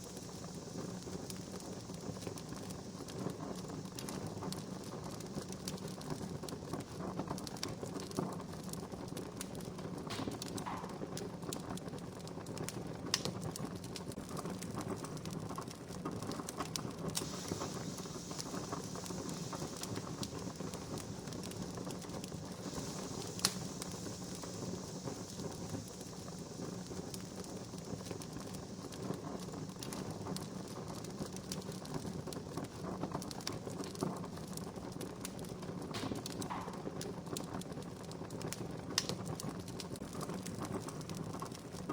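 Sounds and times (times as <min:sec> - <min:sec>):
campfire crackling: 0:00.0 - 0:41.9.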